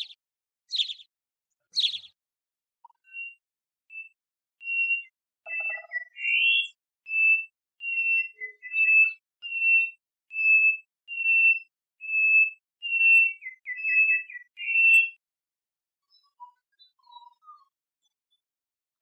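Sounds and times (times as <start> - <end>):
songbird whistling: 0.0 - 1.1, 1.8 - 2.2, 2.9 - 15.2.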